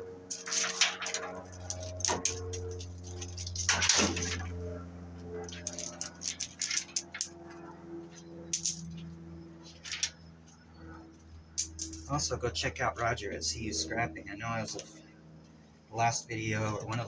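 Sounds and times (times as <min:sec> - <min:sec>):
low hum: 0:00.0 - 0:17.0
metal cable clicking and clattering: 0:00.3 - 0:09.1, 0:09.7 - 0:10.2, 0:11.6 - 0:12.1.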